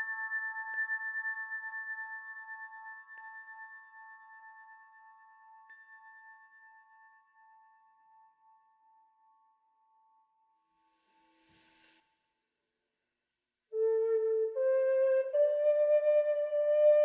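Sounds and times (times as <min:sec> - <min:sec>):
singing bowl ringing: 0:00.0 - 0:10.2.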